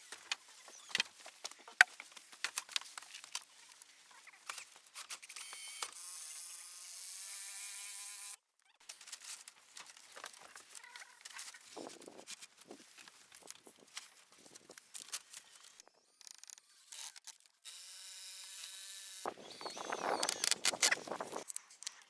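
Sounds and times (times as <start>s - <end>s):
small motor buzzing: 5.3s - 8.4s, 16.2s - 21.5s.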